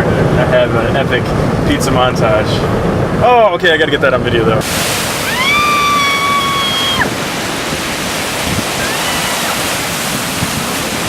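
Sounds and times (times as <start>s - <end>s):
wind on microphone: 4.4s - 11.0s
ocean surf: 4.6s - 11.0s.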